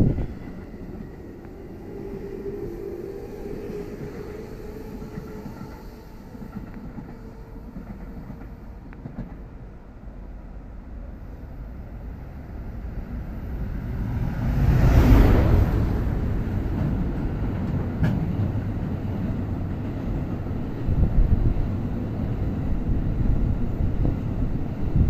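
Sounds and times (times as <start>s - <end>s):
train motor humming: 0.0s - 9.1s
train wheels rumbling on rails: 0.0s - 10.1s, 11.7s - 25.0s.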